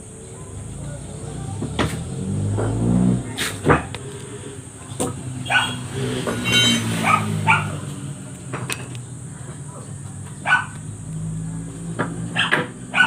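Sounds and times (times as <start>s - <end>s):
dog barking: 5.4s - 5.9s, 6.9s - 7.8s, 10.4s - 10.8s, 12.3s - 13.0s.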